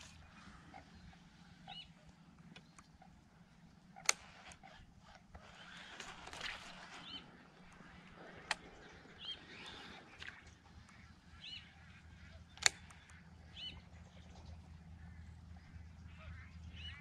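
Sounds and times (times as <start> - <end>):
sharp clicks: 2.1 - 11.3, 12.2 - 13.4.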